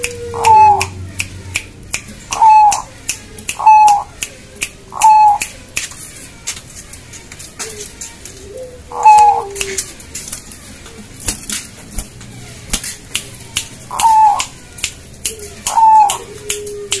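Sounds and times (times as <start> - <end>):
dove cooing: 0.0 - 1.0, 2.3 - 4.2, 4.8 - 5.5, 7.6 - 14.6, 15.2 - 17.0
sharp clicks: 0.0 - 8.5, 9.1 - 17.0.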